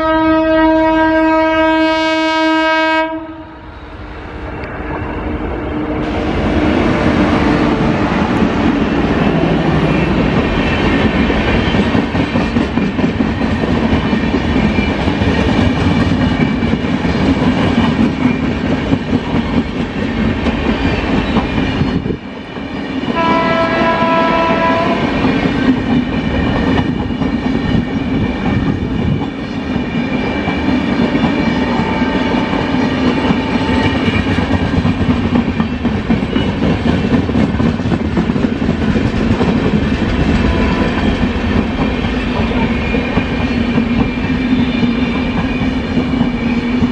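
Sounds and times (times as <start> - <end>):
train horn chord: 0.0 - 3.7, 23.1 - 25.1
train wheels rolling on rails: 3.7 - 46.9.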